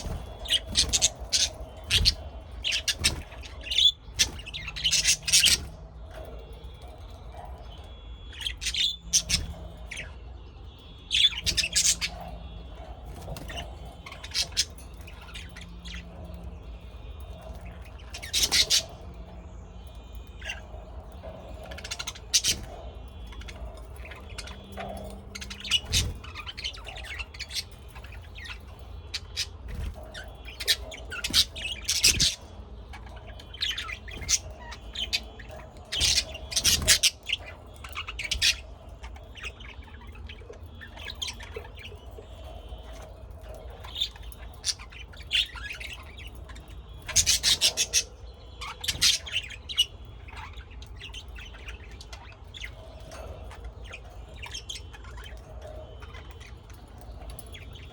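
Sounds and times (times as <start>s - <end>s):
birds chirping: 0.0s - 57.9s.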